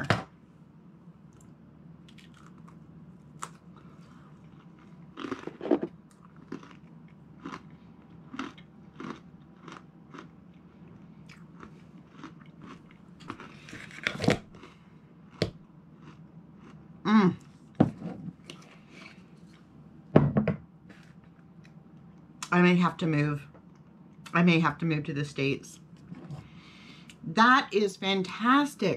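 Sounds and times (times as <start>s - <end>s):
person crunching a cracker: 2.1s - 16.8s.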